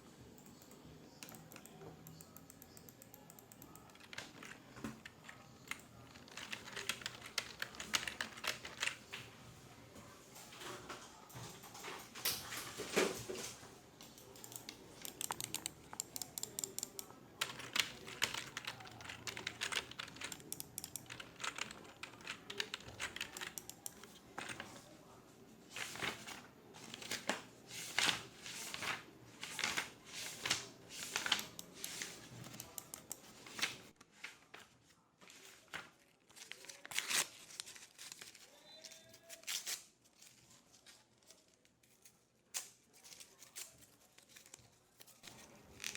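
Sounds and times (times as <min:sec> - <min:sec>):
keyboard typing: 0:00.4 - 0:09.1, 0:14.0 - 0:24.9, 0:28.8 - 0:33.9.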